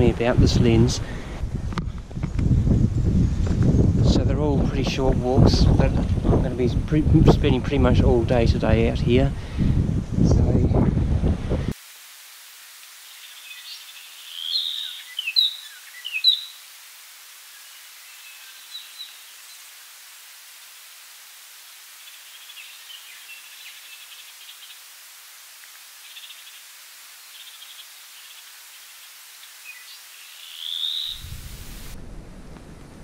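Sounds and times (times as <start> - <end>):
birds whistling sliding notes: 13.0 - 16.6, 27.3 - 32.0
birds chirping: 13.0 - 16.7, 17.4 - 20.1, 21.6 - 32.0.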